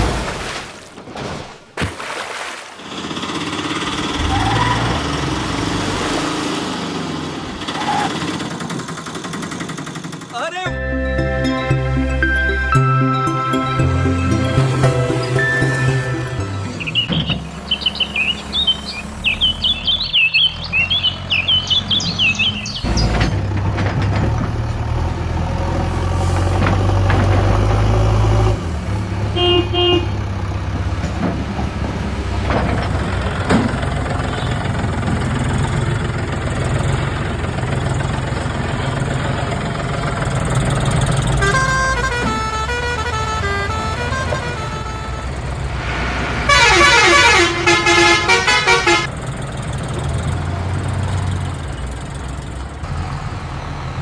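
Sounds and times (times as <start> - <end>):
high chirping: 10.7 - 22.9
horn toots: 41.3 - 49.1.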